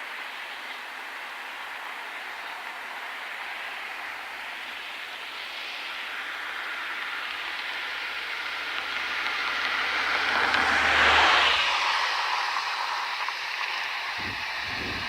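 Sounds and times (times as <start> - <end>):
train noise: 0.0 - 15.0
wind buffeting microphone: 14.2 - 15.0.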